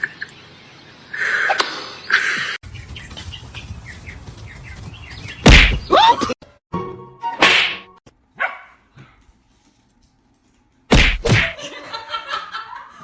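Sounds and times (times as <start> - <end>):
dog barking: 8.4 - 8.8.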